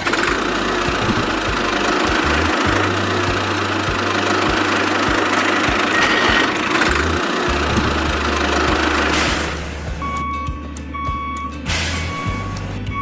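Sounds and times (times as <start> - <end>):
small motor humming: 0.0 - 9.8
regular mechanical knocks: 0.0 - 12.7.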